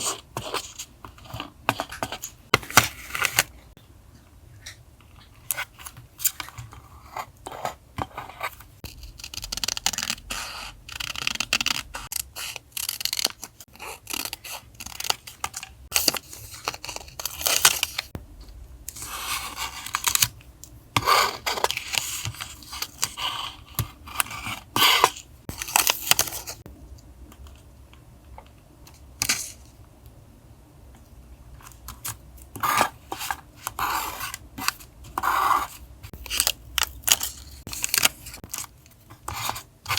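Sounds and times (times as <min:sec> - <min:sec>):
low steady hum: 0:15.4 - 0:39.9.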